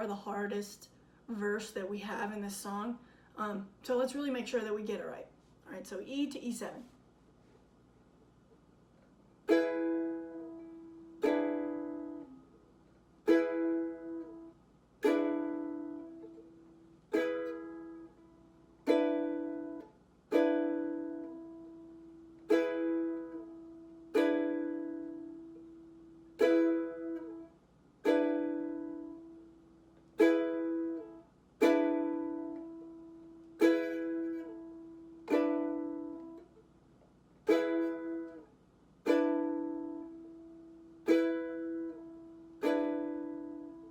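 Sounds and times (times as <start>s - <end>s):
ukulele strummed slowly: 9.4s - 36.7s, 37.4s - 43.9s.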